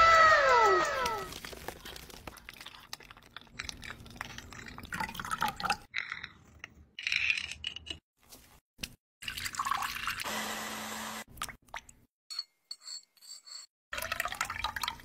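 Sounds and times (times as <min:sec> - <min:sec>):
milk pouring splashily: 0:09.2 - 0:10.2.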